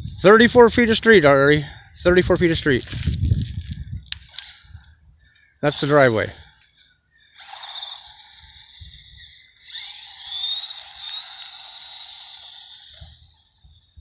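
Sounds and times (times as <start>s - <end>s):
rc truck electric motor whining: 4.1s - 5.0s, 5.7s - 14.0s.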